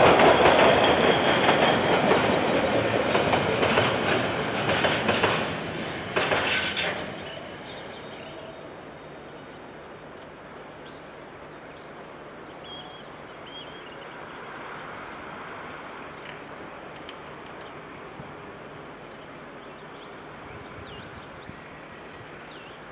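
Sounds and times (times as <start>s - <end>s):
freight train clattering past: 0.0s - 9.0s.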